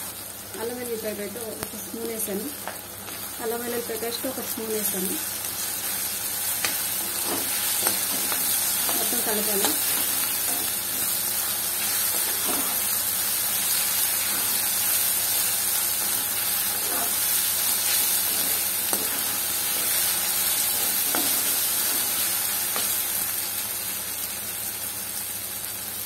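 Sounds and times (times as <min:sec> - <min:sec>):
vegetables sizzling in hot oil: 0:00.0 - 0:26.0
steel spoon scraping a pan: 0:16.7 - 0:17.2.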